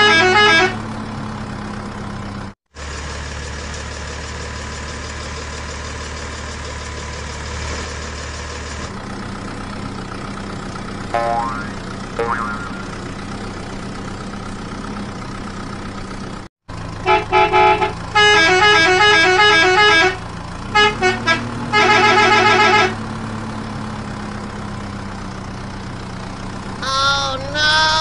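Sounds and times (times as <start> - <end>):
electronic horn beeps and tunes: 0.0 - 0.8, 11.2 - 12.9, 17.1 - 20.2, 20.8 - 23.0
low engine hum: 0.0 - 28.0
wavering horn sound: 11.2 - 13.0.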